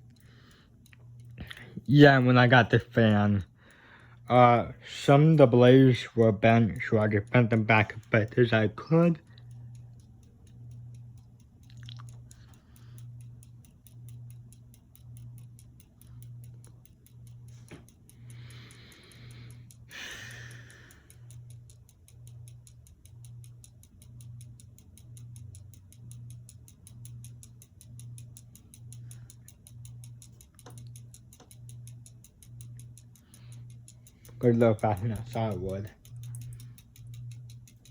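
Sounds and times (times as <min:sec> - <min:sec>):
ceiling fan humming: 0:00.0 - 0:37.9.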